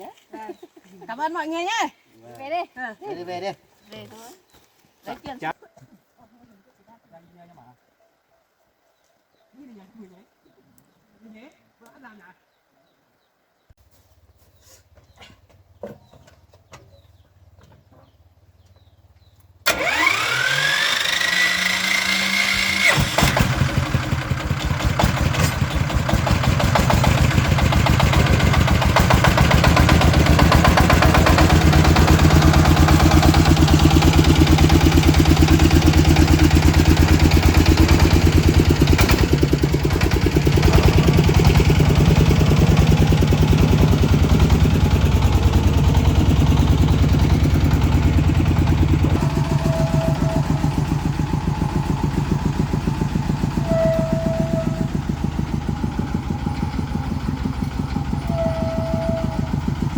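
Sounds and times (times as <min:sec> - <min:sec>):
truck engine idling: 0:18.8 - 0:59.9
truck engine cranking: 0:19.6 - 0:59.9.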